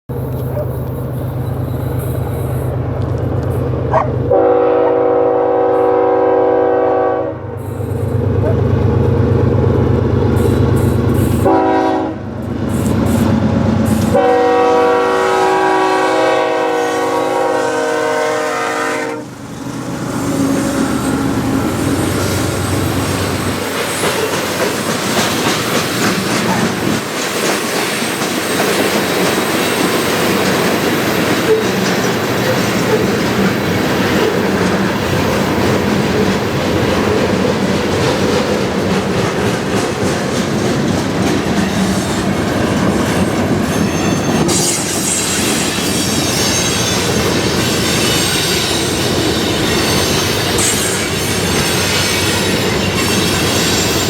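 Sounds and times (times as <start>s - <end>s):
train cars rumbling past: 0.1s - 54.0s
steel wheel squeal: 0.3s - 2.9s, 43.0s - 54.0s.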